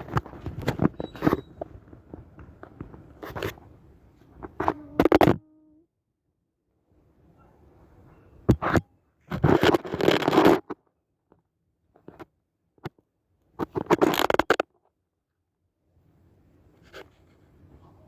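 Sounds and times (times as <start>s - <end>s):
scraping and crunching handling noise: 0.0s - 5.4s, 8.5s - 10.8s, 13.6s - 14.7s.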